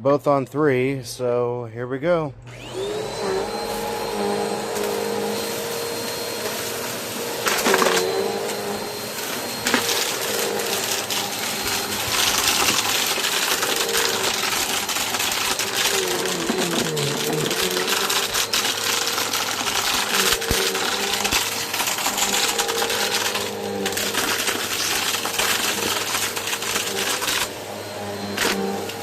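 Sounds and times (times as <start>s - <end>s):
vacuum cleaner motor whine: 2.4s - 29.0s
debris crackling in vacuum: 7.2s - 27.6s.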